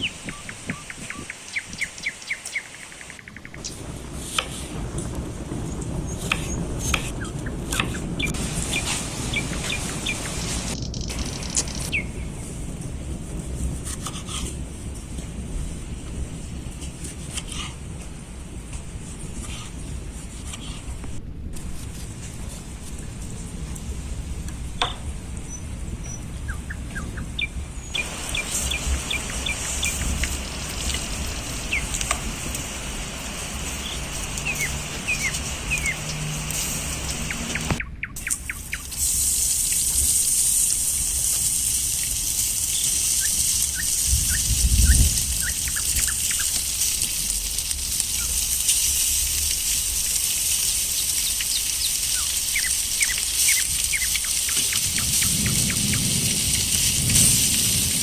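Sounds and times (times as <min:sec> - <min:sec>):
small birds chirping: 0:00.0 - 0:03.8, 0:06.1 - 0:12.5, 0:24.8 - 0:39.0, 0:42.0 - 0:46.9, 0:48.1 - 0:48.5, 0:50.6 - 0:56.3
steady outdoor hiss: 0:00.0 - 0:58.0
wind on microphone rumble: 0:00.0 - 0:58.0.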